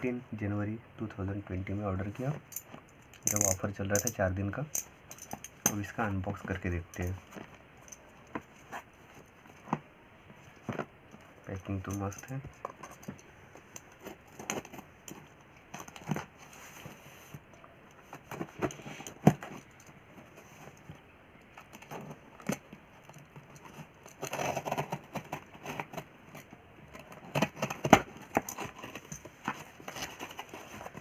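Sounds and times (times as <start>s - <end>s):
paper packaging rustling: 23.6s - 31.0s.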